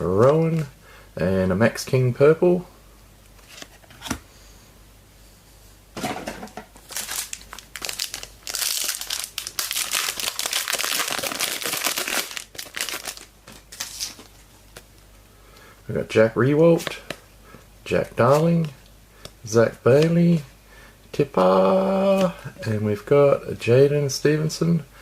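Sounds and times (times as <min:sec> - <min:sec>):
plastic wrapper crinkling: 0:06.8 - 0:14.9.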